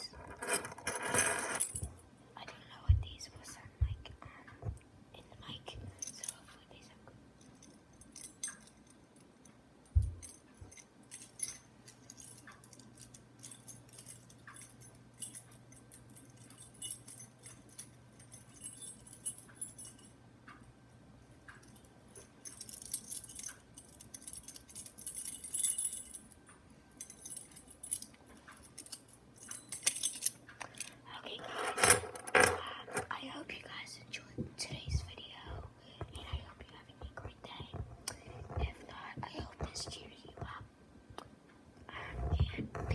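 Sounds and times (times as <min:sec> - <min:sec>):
light metallic jingling: 0:00.1 - 0:02.1, 0:05.9 - 0:06.7, 0:07.4 - 0:33.4.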